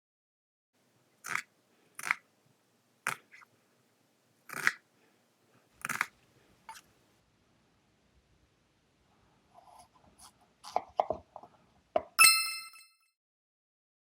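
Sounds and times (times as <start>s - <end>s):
knife crunching through food: 1.2s - 2.3s, 3.0s - 3.5s, 4.5s - 4.9s, 5.6s - 7.0s.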